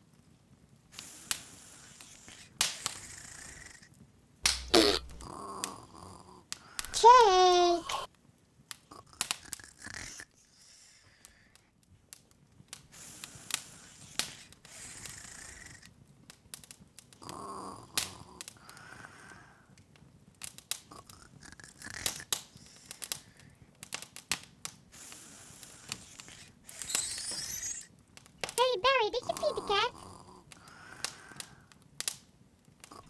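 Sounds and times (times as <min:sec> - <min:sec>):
open fire crackling: 0:00.1 - 0:33.0
sharp pops from fire: 0:01.0 - 0:03.1, 0:04.4 - 0:05.3, 0:22.2 - 0:29.0, 0:30.5 - 0:32.3.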